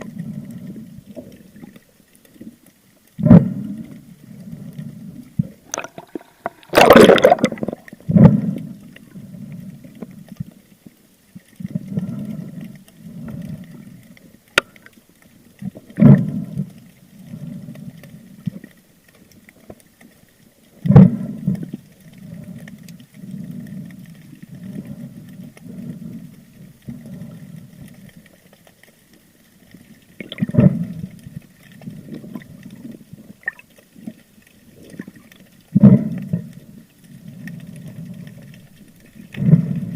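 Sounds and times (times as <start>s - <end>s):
water gurgling underwater: 5.2s - 9.9s, 15.6s - 16.8s, 29.8s - 39.9s
loud splashes: 5.8s - 7.8s.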